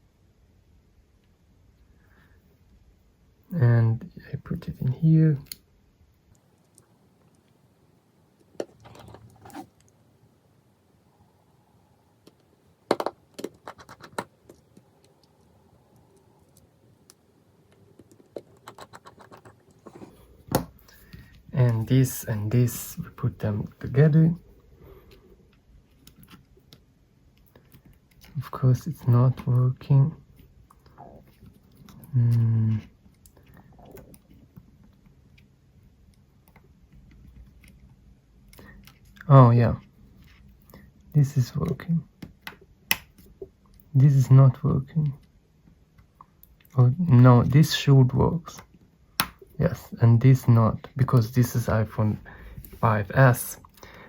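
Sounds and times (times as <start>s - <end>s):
small parts clicking and tapping: 12.2s - 20.0s.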